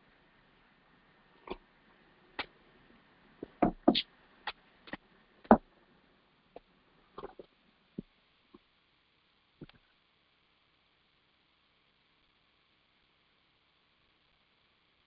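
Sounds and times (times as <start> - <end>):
sharp knocks: 3.4 - 4.0.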